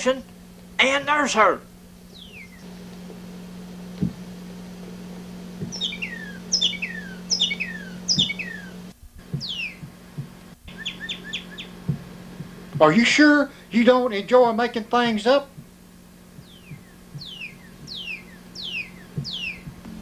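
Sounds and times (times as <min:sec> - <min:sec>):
low electrical hum: 0:00.0 - 0:20.0
songbird whistling and chirping: 0:02.1 - 0:02.6, 0:05.6 - 0:09.9, 0:10.7 - 0:11.8, 0:16.4 - 0:19.8.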